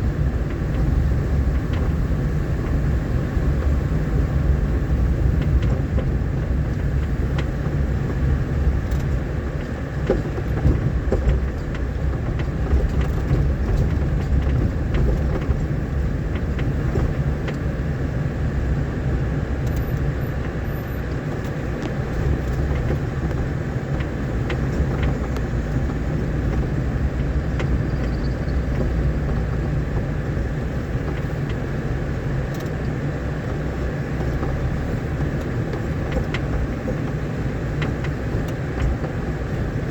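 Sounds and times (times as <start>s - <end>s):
vehicle engine and road rumble: 0.0s - 39.9s
knocks and rattles: 5.3s - 17.6s.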